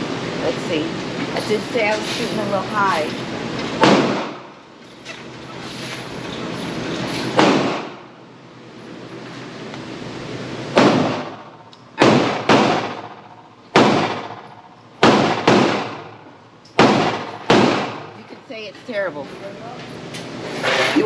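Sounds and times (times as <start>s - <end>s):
pistol gunshots: 3.8s - 4.5s, 7.4s - 8.0s, 10.8s - 16.2s, 16.8s - 18.1s.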